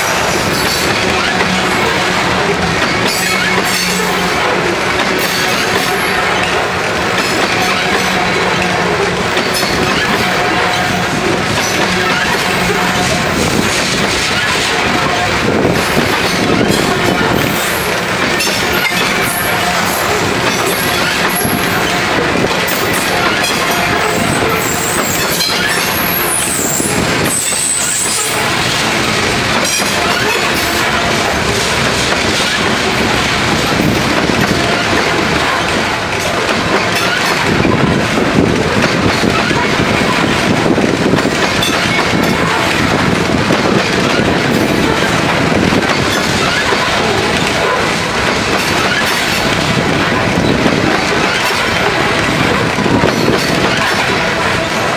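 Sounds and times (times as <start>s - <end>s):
train wheels rumbling on track: 0.0s - 54.9s
high wheel squeals: 5.2s - 29.1s.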